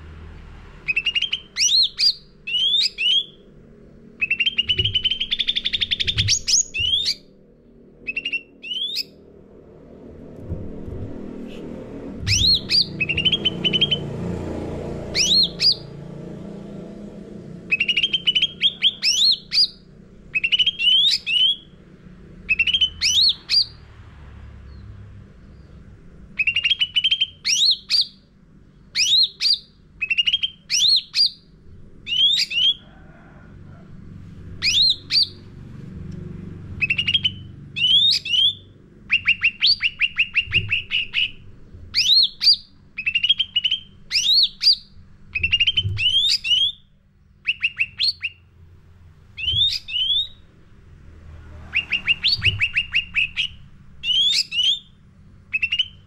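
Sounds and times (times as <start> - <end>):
bird whistled chirps: 0.9 - 3.4, 4.2 - 7.3, 8.0 - 9.2, 12.3 - 14.0, 15.1 - 15.8, 17.7 - 21.7, 22.5 - 23.8, 26.4 - 28.2, 28.9 - 31.4, 32.1 - 32.8, 34.6 - 35.4, 36.8 - 48.4, 49.4 - 50.4, 51.7 - 56.0
rattling bird trill: 4.2 - 7.3, 12.3 - 14.1, 36.8 - 48.4, 49.4 - 50.4.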